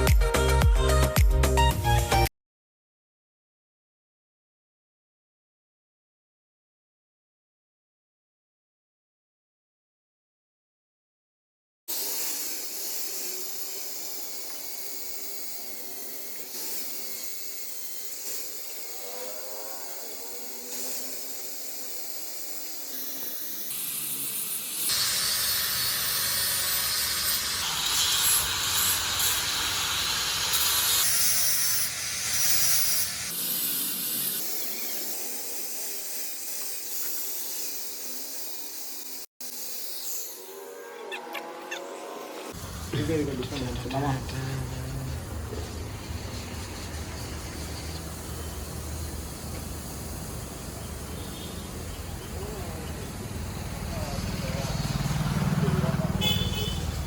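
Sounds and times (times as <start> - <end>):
rasping sawing sound: 11.9 - 57.0.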